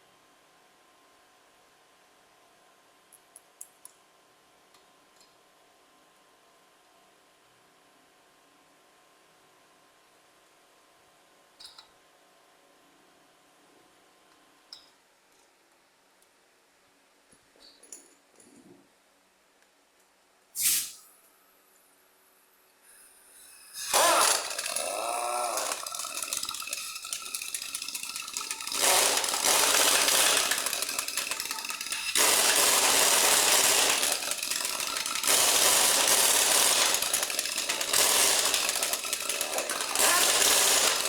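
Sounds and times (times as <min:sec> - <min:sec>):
pneumatic impact wrench rattling: 0:20.6 - 0:21.0, 0:23.6 - 0:41.0.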